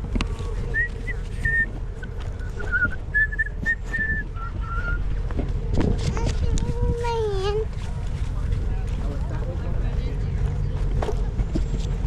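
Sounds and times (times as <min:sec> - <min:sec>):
steady low rumble: 0:00.0 - 0:12.0
person whistling a tune: 0:00.8 - 0:01.7, 0:02.4 - 0:05.0.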